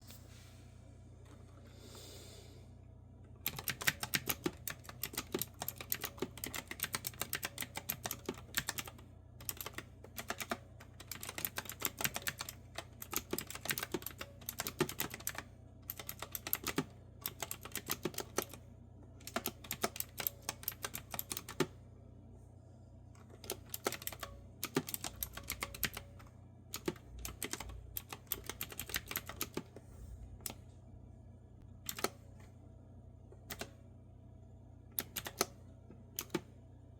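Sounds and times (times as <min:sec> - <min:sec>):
faint low hum: 0:00.0 - 0:36.9
clicky keyboard typing: 0:03.4 - 0:18.6, 0:19.2 - 0:21.7, 0:23.3 - 0:29.7, 0:31.9 - 0:32.2, 0:33.5 - 0:33.8, 0:35.0 - 0:35.6, 0:36.2 - 0:36.5.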